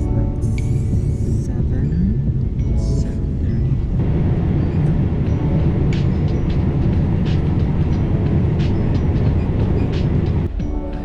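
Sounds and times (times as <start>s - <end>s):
train carriage rumbling: 0.9s - 10.7s.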